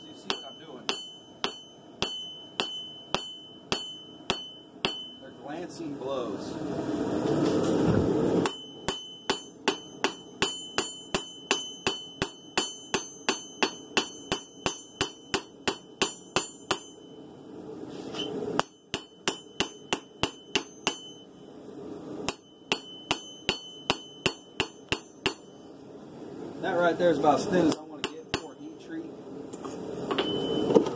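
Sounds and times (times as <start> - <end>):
hammer ringing on steel blade: 0.0 - 5.4, 8.4 - 17.3, 18.6 - 21.5, 22.3 - 25.8, 28.0 - 29.0, 30.2 - 30.7.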